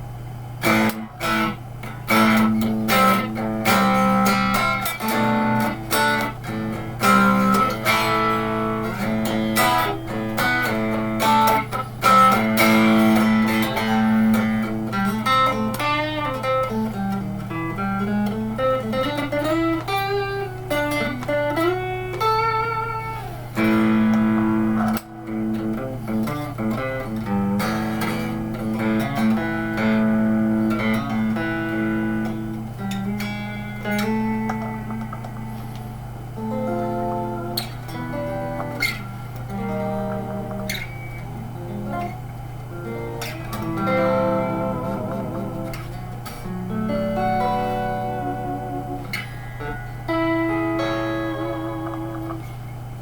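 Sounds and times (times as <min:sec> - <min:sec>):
electric guitar single-note lines: 0:00.0 - 0:53.0
steady low hum: 0:00.0 - 0:53.0.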